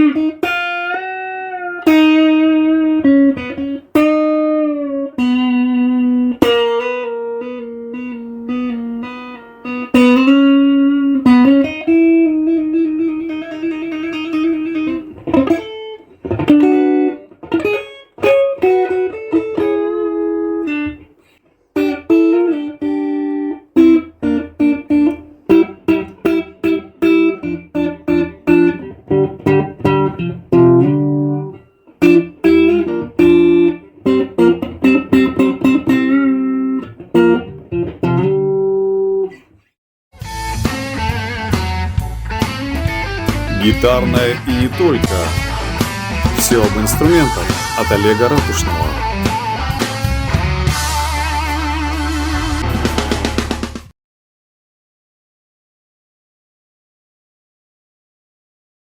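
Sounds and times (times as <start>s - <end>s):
electric guitar melody: 0.0s - 21.1s, 21.8s - 39.4s, 40.7s - 53.3s.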